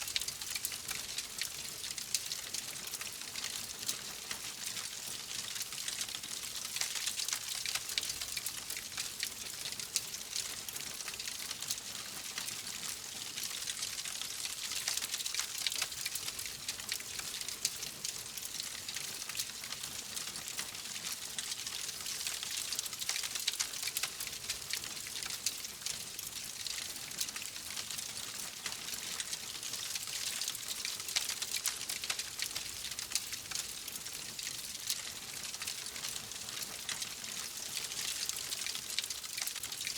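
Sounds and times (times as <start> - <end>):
wood fire crackling: 35.5 - 39.9.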